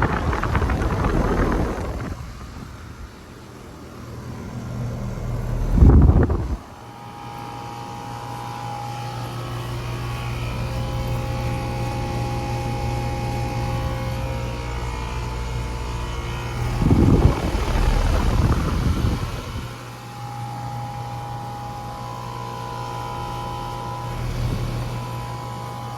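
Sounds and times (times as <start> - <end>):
air conditioner unit humming: 0.0 - 25.9
loud rushing noise: 16.5 - 19.8.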